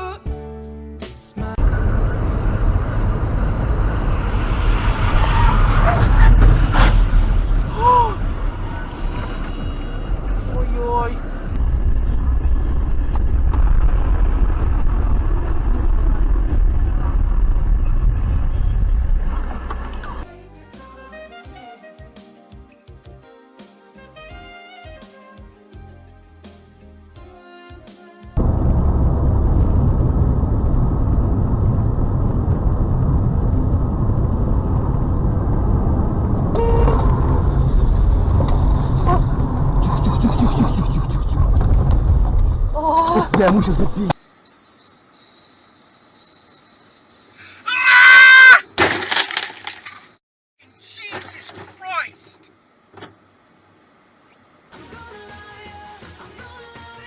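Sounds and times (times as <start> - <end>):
vehicle engine and road noise: 1.0 - 20.3, 28.4 - 47.4, 50.8 - 54.8.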